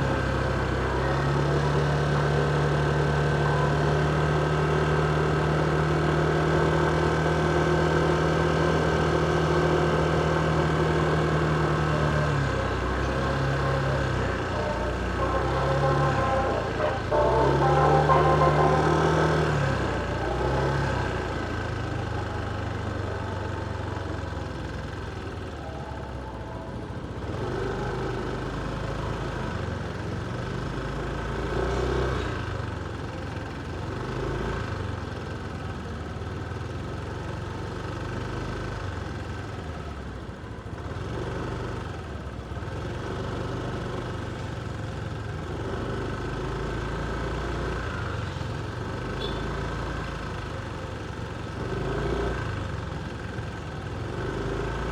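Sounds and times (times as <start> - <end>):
motorcycle engine running: 0.0 - 31.4, 48.6 - 54.9
street traffic noise: 0.0 - 54.9.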